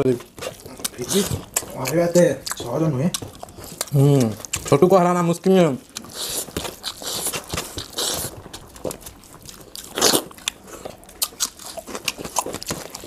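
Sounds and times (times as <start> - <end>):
wet chewing: 0.0 - 13.0.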